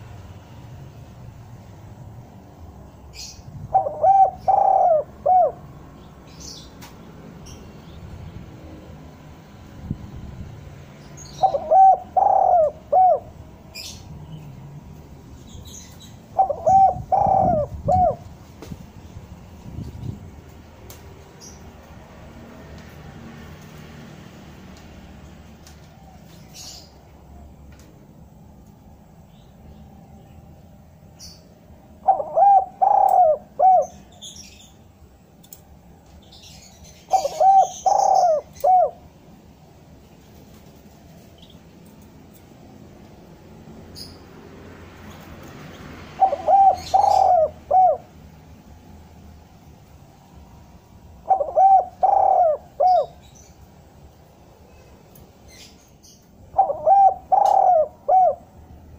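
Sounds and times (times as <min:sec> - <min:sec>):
small birds chirping: 0:00.0 - 0:10.0, 0:10.8 - 0:22.1, 0:25.6 - 0:27.9, 0:28.6 - 0:42.5, 0:43.6 - 0:48.4, 0:49.0 - 0:58.9
dove cooing: 0:03.2 - 0:05.7, 0:11.4 - 0:13.9, 0:16.3 - 0:18.3, 0:32.0 - 0:34.2, 0:36.9 - 0:39.0, 0:46.2 - 0:48.1, 0:51.2 - 0:53.2, 0:56.5 - 0:58.6.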